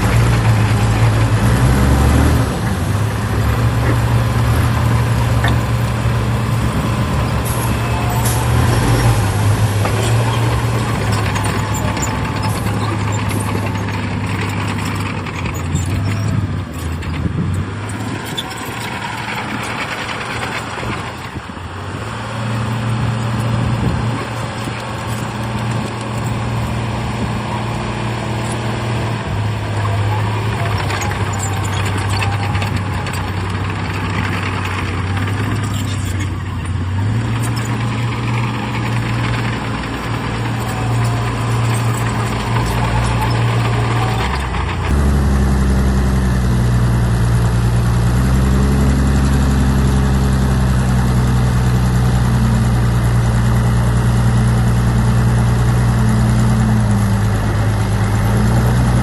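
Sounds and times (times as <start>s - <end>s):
metallic rattling and scraping: 0.0s - 21.6s, 22.5s - 45.0s
diesel machinery engine running: 0.0s - 59.0s.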